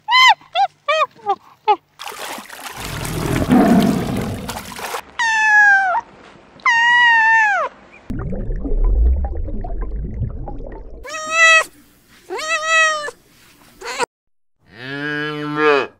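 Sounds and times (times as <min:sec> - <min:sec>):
water splashing and churning: 0:02.0 - 0:05.1
kitten meowing: 0:11.1 - 0:11.7.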